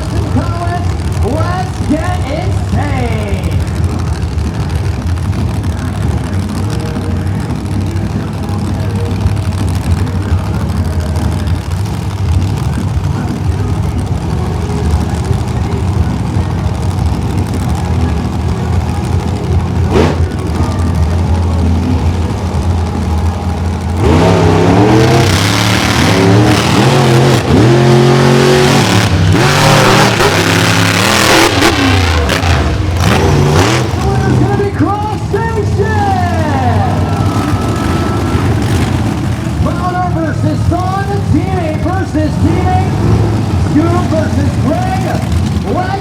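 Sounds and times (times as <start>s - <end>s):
monster truck engines revving: 0.0s - 46.0s.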